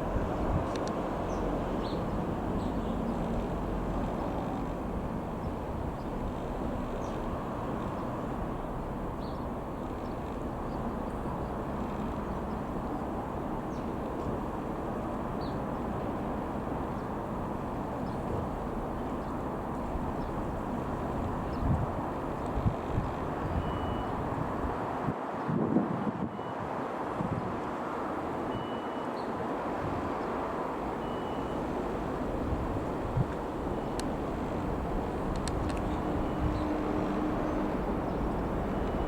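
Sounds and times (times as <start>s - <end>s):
light aircraft engine running: 0.2s - 24.8s.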